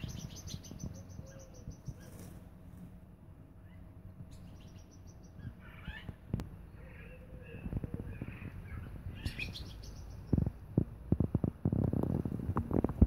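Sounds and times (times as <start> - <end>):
soft bird calls: 0.0 - 2.6, 3.5 - 10.9.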